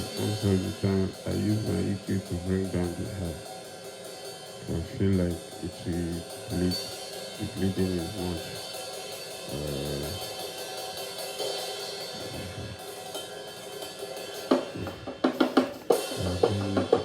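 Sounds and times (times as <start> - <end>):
ringing cymbals: 0.0 - 15.0, 15.8 - 17.0
sharp drum hits: 14.4 - 17.0.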